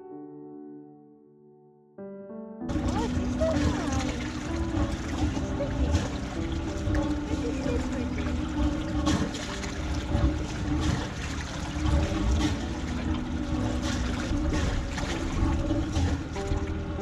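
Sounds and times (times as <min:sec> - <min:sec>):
low rumble: 0:02.7 - 0:17.0
water splashing and trickling: 0:02.7 - 0:17.0.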